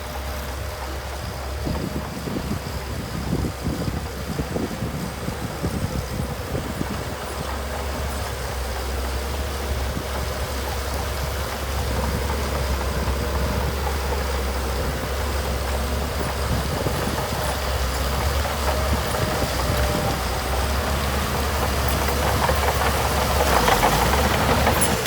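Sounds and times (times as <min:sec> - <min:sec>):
diesel engine droning: 0:00.0 - 0:25.0.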